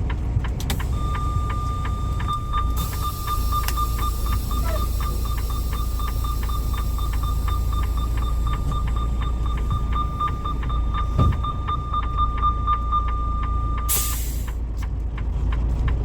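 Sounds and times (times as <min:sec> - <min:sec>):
low engine rumble: 0:00.0 - 0:16.0
electronic warning beeper: 0:00.9 - 0:14.2
low thump: 0:08.4 - 0:11.7.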